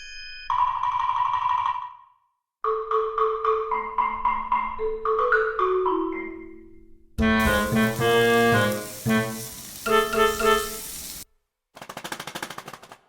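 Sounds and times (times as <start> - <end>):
mallet percussion music: 2.7 - 6.7.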